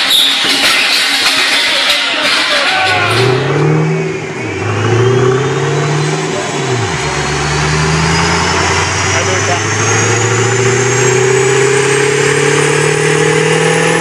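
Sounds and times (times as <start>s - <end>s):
car engine revving under load: 2.8s - 14.0s
high supercharger whine: 2.8s - 14.0s.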